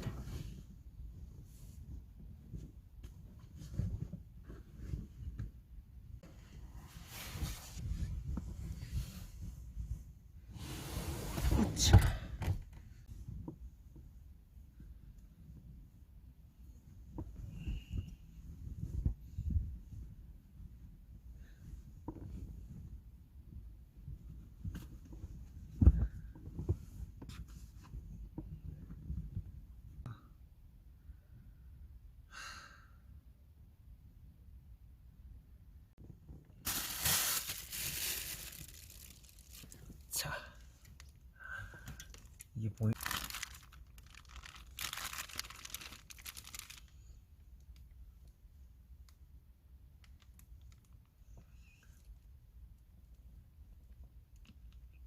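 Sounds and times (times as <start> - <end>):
plastic wrapping crinkling: 36.7 - 40.0, 42.0 - 47.0.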